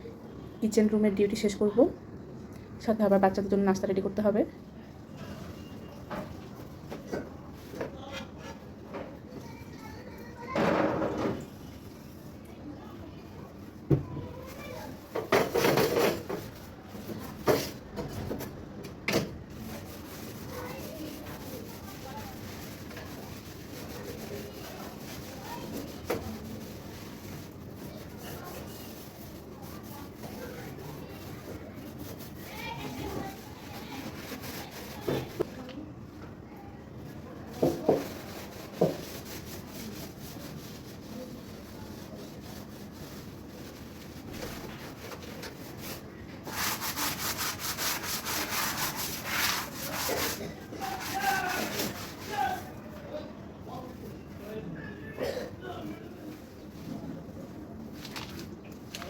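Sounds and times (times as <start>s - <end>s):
kitchen clattering and scraping: 15.2s - 16.6s
cloth rubbing over a surface: 19.6s - 35.4s, 37.6s - 52.7s.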